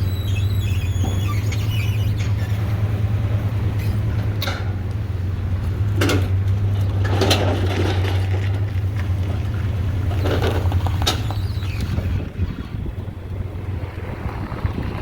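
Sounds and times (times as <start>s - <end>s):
vehicle engine droning: 0.0s - 15.0s
short rattles and knocks: 5.6s - 9.5s, 10.1s - 12.1s.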